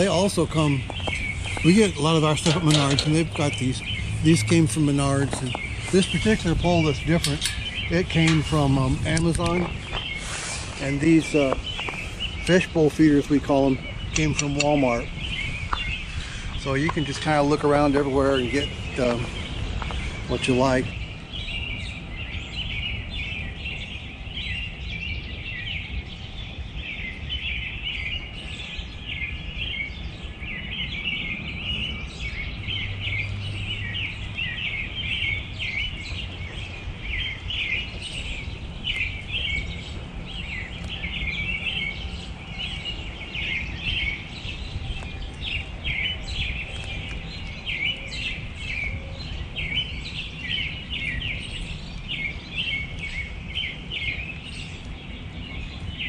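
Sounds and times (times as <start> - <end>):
low outdoor rumble: 0.0 - 27.2
small songbirds chirping: 0.0 - 56.0.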